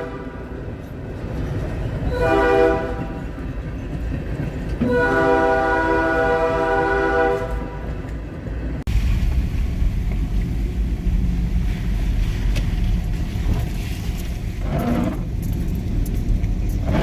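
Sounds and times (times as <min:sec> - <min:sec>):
train horn chord: 0:00.0 - 0:00.5, 0:02.1 - 0:03.2, 0:04.8 - 0:07.8
low vehicle rumble: 0:08.6 - 0:17.0.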